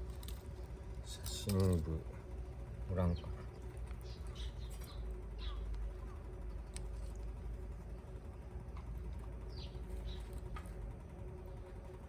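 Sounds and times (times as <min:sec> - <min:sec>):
low background rumble: 0:00.0 - 0:12.0
bird chirps: 0:04.0 - 0:05.7.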